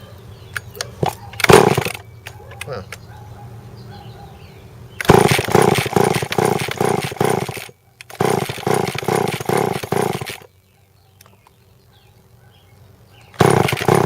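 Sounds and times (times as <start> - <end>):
chainsaw engine turning over: 0.6 - 2.4, 5.0 - 10.5, 13.3 - 14.0
chainsaw recoil starter pulls: 1.0 - 2.7, 5.0 - 10.5, 13.4 - 14.0.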